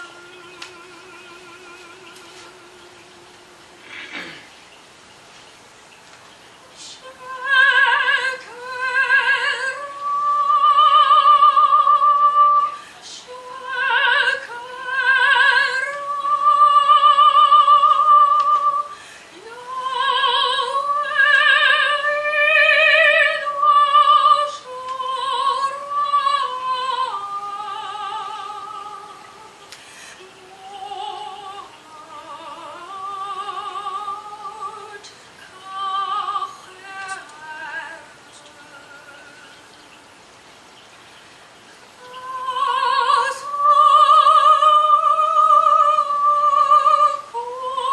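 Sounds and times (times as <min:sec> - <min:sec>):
woman singing operatically: 0:00.0 - 0:04.3, 0:06.6 - 0:39.9, 0:42.0 - 0:47.9
short breaths: 0:12.8 - 0:13.1, 0:18.9 - 0:19.4, 0:29.7 - 0:30.2.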